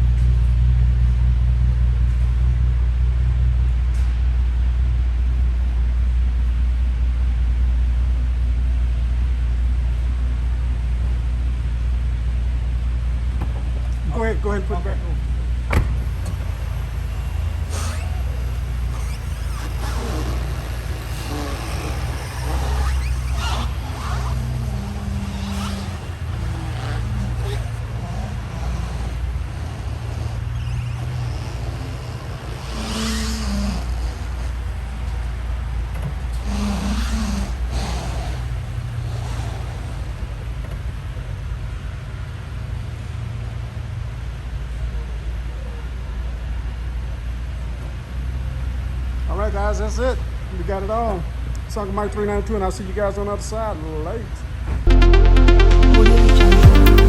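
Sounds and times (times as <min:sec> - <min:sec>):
car engine idling: 0:15.7 - 0:43.2, 0:54.9 - 0:57.0
faint voices: 0:16.0 - 0:41.4.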